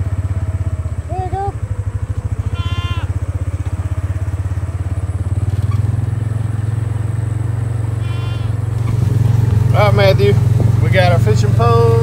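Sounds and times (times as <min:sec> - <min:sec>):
off-road vehicle engine running: 0:00.0 - 0:12.0.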